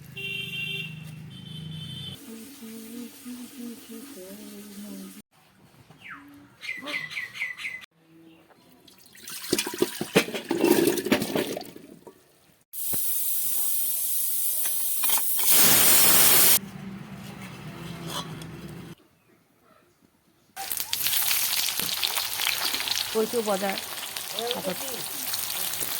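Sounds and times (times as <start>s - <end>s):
kitchen clattering and knocking: 9.3s - 11.8s
water running from a tap: 20.8s - 25.9s.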